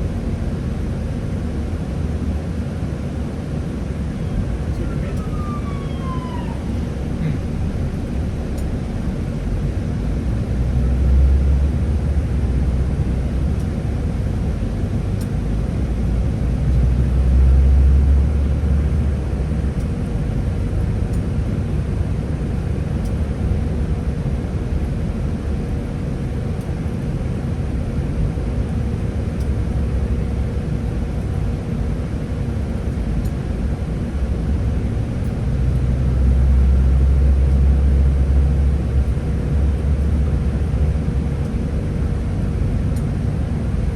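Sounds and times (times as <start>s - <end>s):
bus engine and road rumble: 0.0s - 43.9s
faint steady whine: 0.0s - 43.9s.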